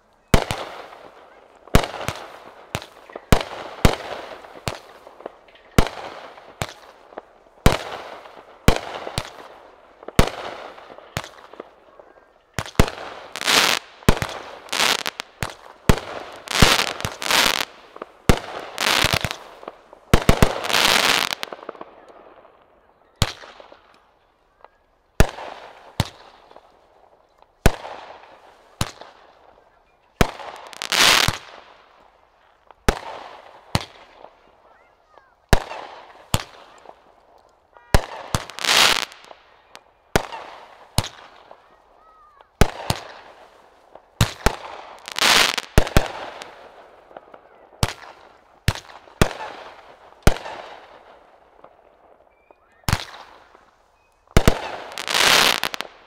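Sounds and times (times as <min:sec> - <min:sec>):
fireworks exploding: 0:00.3 - 0:23.9, 0:25.2 - 0:29.6, 0:30.2 - 0:56.0.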